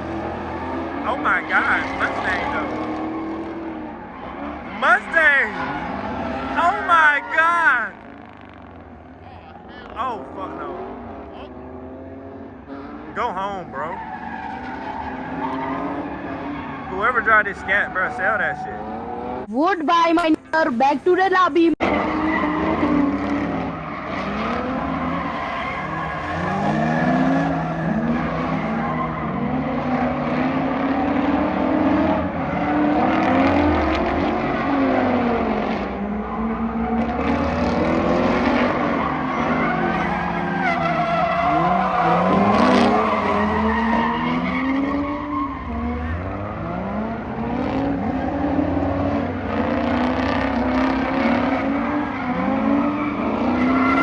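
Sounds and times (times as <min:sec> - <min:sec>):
car engines revving: 0:00.0 - 0:54.0
tyres squealing: 0:00.4 - 0:02.8, 0:04.0 - 0:08.0, 0:50.8 - 0:54.0.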